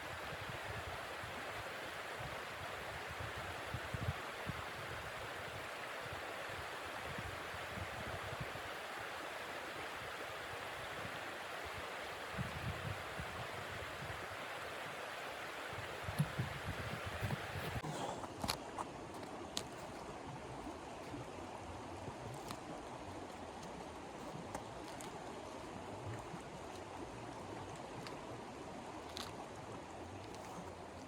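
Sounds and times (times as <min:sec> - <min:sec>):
wind buffeting microphone: 0:16.0 - 0:17.8.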